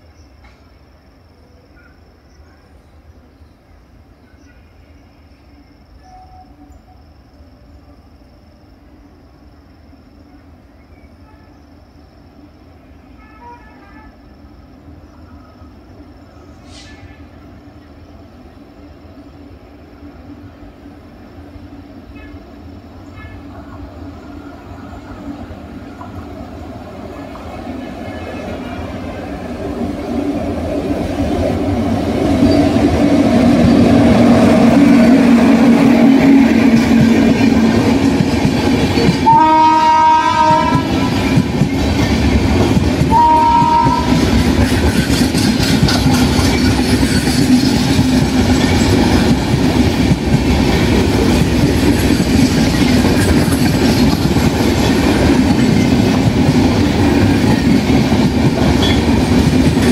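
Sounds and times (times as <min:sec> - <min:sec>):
train rumbling past: 0:00.0 - 0:59.9
locomotive horn blasts: 0:13.2 - 0:14.2, 0:39.2 - 0:41.2, 0:43.1 - 0:44.2
train wheels rushing on rails: 0:14.4 - 0:59.9.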